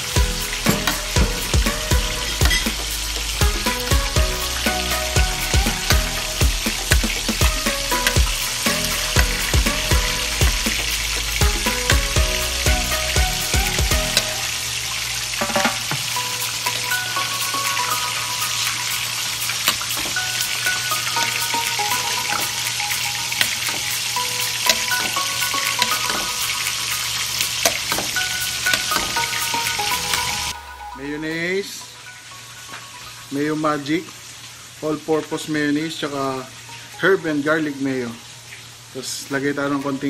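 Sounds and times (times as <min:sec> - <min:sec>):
chicken wings sizzling in pan: 0:00.0 - 0:30.6
background music: 0:00.0 - 0:34.2.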